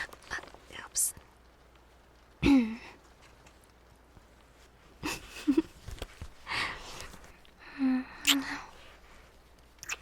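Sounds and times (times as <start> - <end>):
breath: 6.4 - 9.0
mouth clicks: 9.8 - 10.0.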